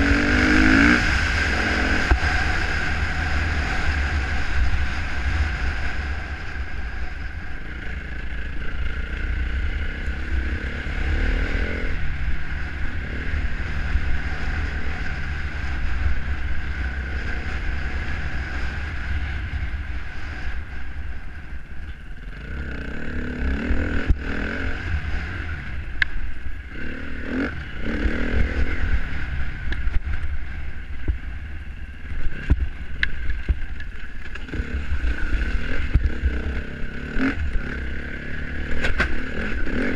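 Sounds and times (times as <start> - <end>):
dirt bike engine revving: 0.0 - 20.8, 22.2 - 25.9, 26.6 - 30.7, 34.3 - 39.9.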